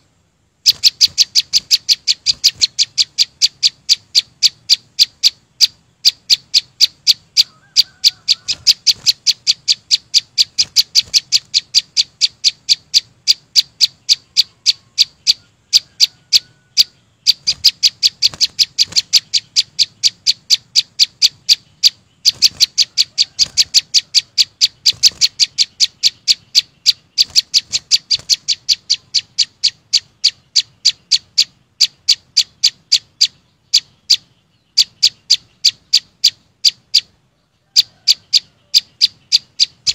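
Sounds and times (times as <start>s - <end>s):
songbird chipping: 0.0s - 39.9s.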